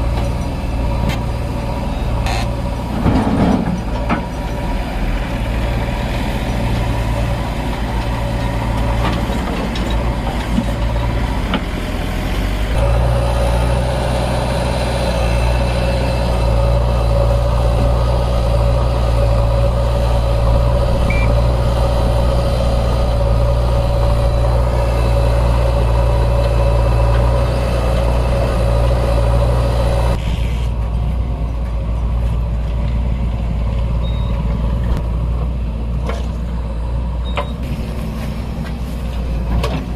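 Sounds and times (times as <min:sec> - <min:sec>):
heavy diesel engine running: 0:00.0 - 0:39.9
steady whine: 0:12.7 - 0:30.2.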